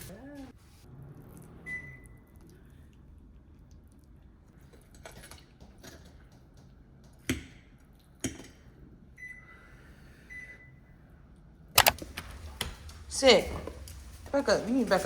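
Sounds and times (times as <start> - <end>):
light clicks: 11.8 - 12.0.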